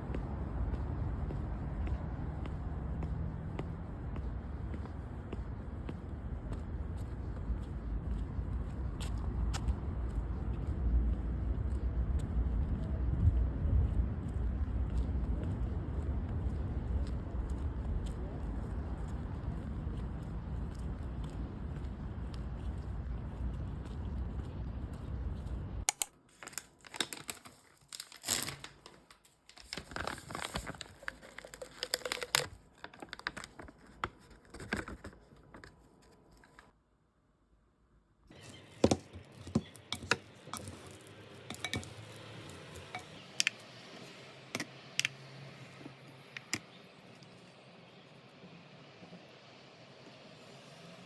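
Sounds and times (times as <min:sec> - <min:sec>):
crinkling and tearing: 0:25.9 - 0:36.7.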